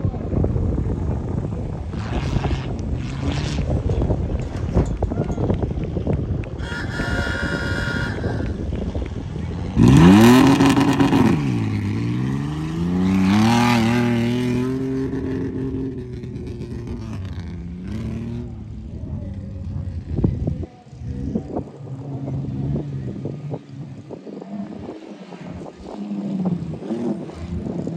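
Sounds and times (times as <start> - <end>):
truck engine revving hard: 6.6 - 18.6.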